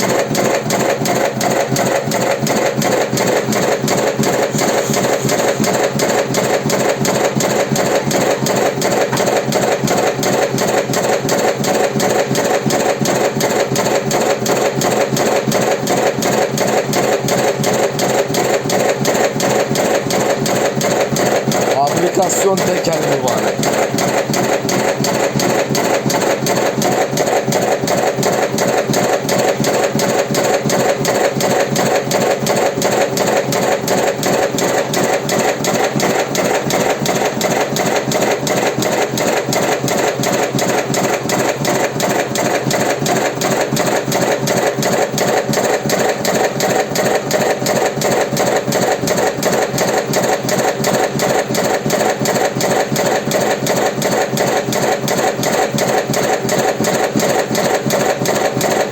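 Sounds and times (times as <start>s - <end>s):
filling machine running: 0.0s - 58.9s.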